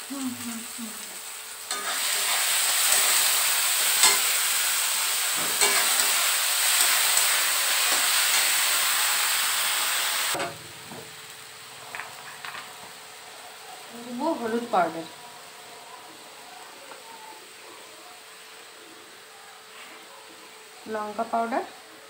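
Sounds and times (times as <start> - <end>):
paste sizzling in hot oil: 0.0 - 17.6
spatula tapping pan: 3.9 - 4.4, 5.4 - 7.3.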